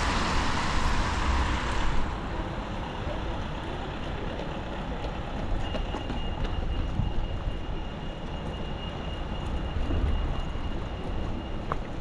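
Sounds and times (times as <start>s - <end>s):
high-pitched whine: 0.0s - 3.9s
rainy street rumble: 0.0s - 12.0s.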